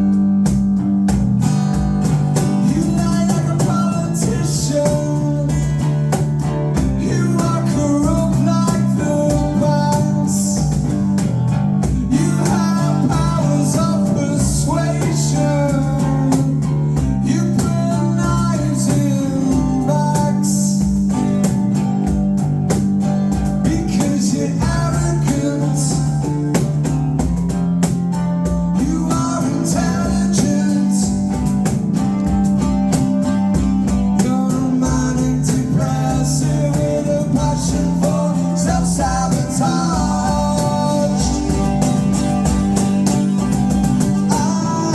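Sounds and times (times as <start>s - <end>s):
live band playing: 0.0s - 44.9s
person singing: 6.8s - 10.9s, 11.9s - 21.0s, 28.7s - 31.4s, 34.2s - 42.2s, 44.1s - 44.9s.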